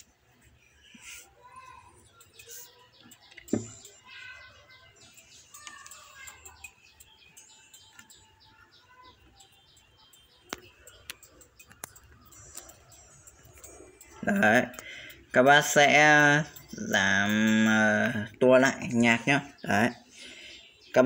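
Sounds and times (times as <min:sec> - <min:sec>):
faint bird chirping: 0:00.0 - 0:21.0
sharp clicks: 0:09.3 - 0:15.2.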